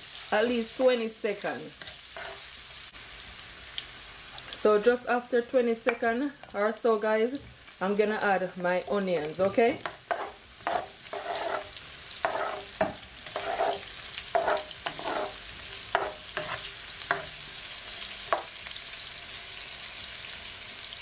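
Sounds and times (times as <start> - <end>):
vegetables sizzling in oil: 0.0 - 21.0
spatula scraping and tapping pan: 1.8 - 2.5, 9.2 - 17.4, 18.2 - 18.5.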